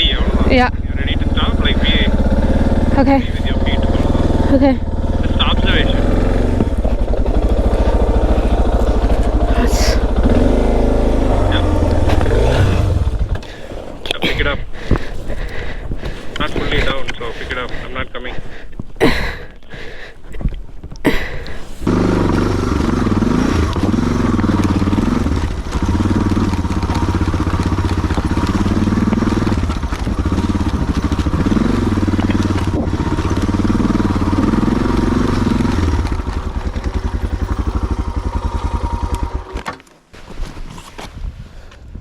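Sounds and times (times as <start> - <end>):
motorcycle engine running: 0.0 - 19.2, 21.1 - 39.8.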